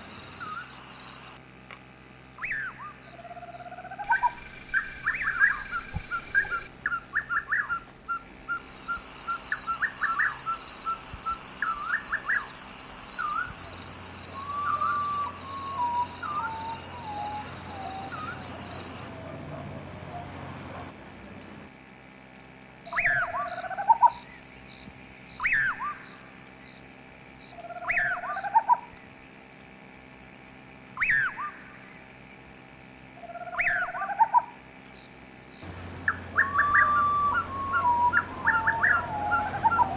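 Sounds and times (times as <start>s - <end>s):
birds calling: 14.4s - 21.7s, 35.6s - 39.9s
bird repeating short rising call: 35.7s - 39.9s.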